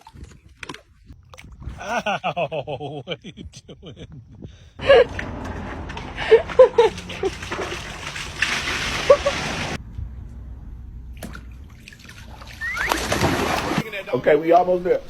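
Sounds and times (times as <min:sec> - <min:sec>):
dogs splashing in water: 0:05.7 - 0:09.8, 0:11.2 - 0:13.8.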